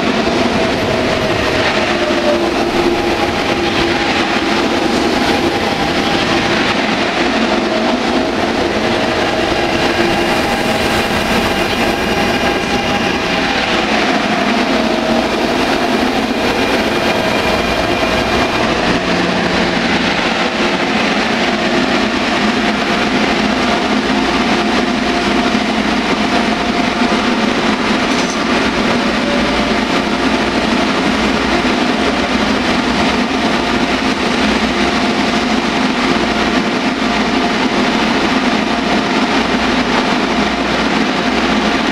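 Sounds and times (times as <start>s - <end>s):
high-pitched whine: 0.0s - 22.2s
train rolling noise: 0.0s - 41.9s
train motor whine: 0.1s - 20.1s.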